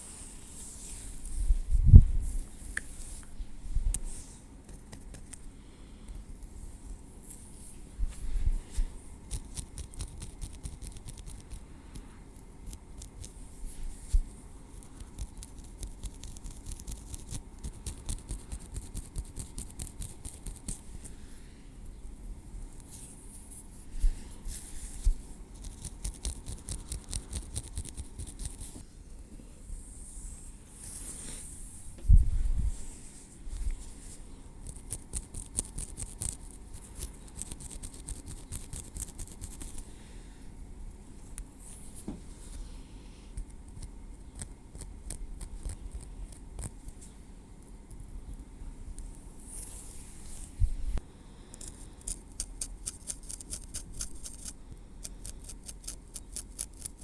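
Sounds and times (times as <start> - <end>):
tweezers clicking and scratching: 9.3 - 11.6, 14.8 - 20.8, 25.6 - 28.7, 34.6 - 39.8, 51.6 - 57.0
soft low thumps: 31.9 - 32.8.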